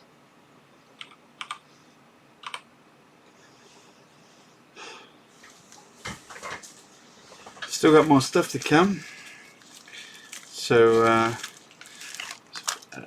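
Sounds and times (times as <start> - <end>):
soft rustle: 6.6 - 12.7.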